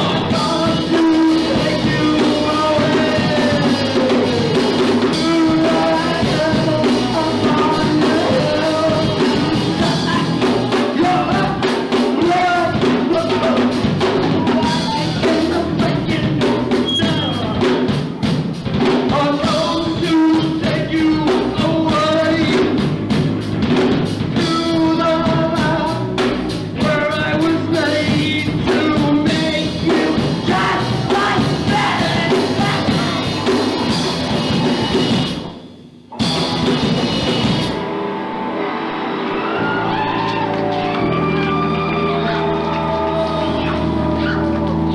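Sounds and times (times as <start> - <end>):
person singing: 0.0 - 17.8, 18.9 - 22.8, 24.4 - 33.6, 40.8 - 44.8
drum kit: 0.0 - 44.9
punk rock band playing: 0.0 - 44.9.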